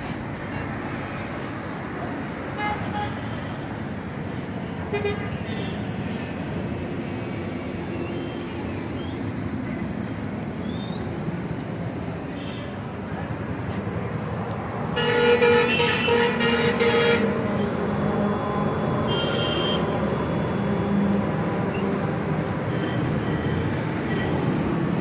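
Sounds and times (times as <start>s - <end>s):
road traffic: 0.0s - 25.0s
vehicle horn: 15.0s - 17.4s, 19.1s - 19.9s.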